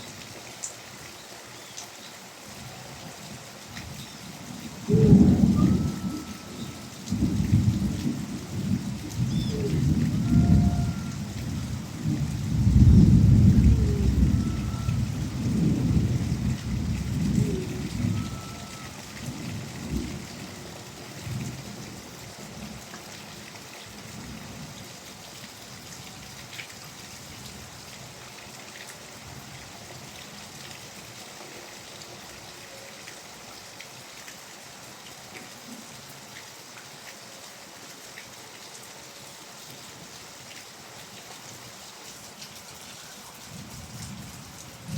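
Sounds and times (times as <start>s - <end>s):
steady rainfall: 0.0s - 44.9s
thunder rumbling: 4.8s - 18.9s.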